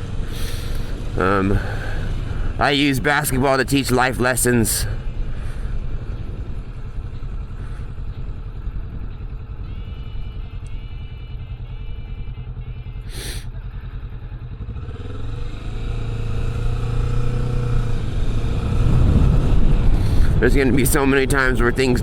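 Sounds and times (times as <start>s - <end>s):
motorcycle engine running: 0.0s - 22.0s
wind rush: 18.5s - 22.0s.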